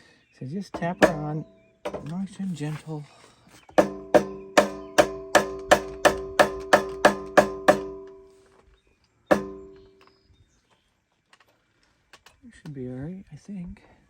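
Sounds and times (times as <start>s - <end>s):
rubber hammer tapping metal: 0.8s - 2.2s, 3.8s - 8.3s, 9.3s - 10.0s.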